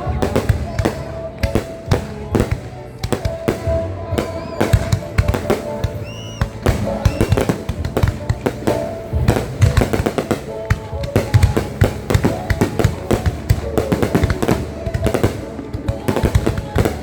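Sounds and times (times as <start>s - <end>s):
fireworks bangs and pops: 0.0s - 17.0s
music playing: 0.0s - 17.0s.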